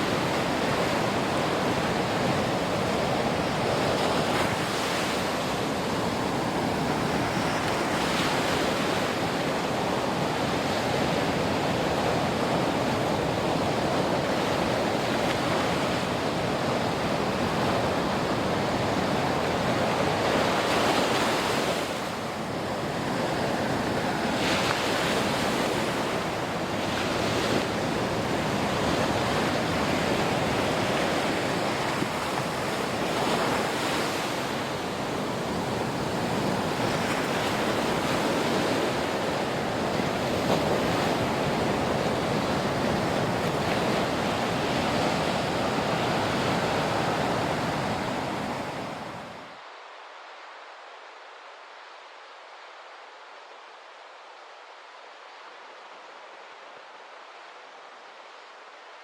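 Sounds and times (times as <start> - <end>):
ocean waves washing in: 0.0 - 50.8.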